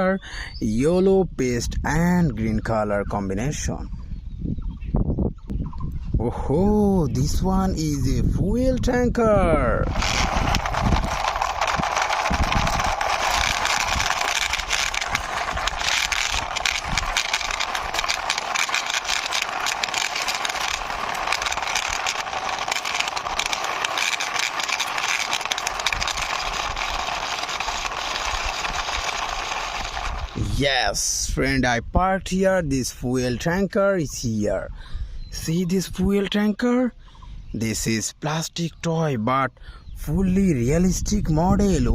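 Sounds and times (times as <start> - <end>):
toy wheels rattling on rough wall: 9.6 - 30.6.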